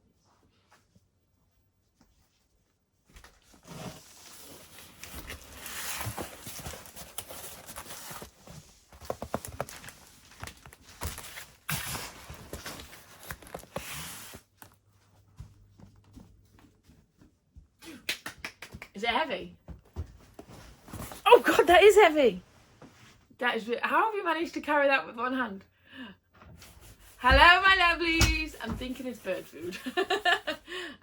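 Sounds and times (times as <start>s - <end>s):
cardboard parcel knocking and rustling: 4.9s - 14.0s, 27.2s - 29.2s
footsteps: 26.8s - 30.2s.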